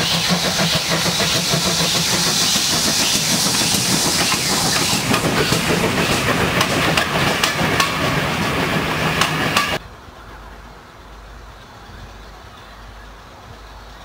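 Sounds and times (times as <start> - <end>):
train coaches rushing past: 0.0 - 9.8
wheels clicking over rail joints: 0.0 - 9.8
distant train rumble: 0.0 - 14.0.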